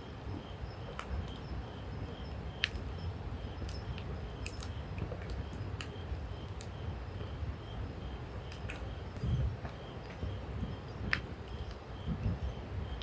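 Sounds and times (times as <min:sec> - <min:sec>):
low steady rumble: 0:00.0 - 0:13.0
campfire crackling and popping: 0:00.3 - 0:01.5, 0:02.4 - 0:06.8, 0:08.4 - 0:12.3.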